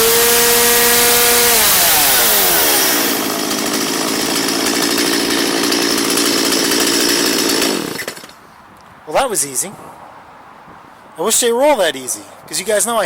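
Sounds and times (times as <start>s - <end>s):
chainsaw revving and idling: 0.0s - 8.4s.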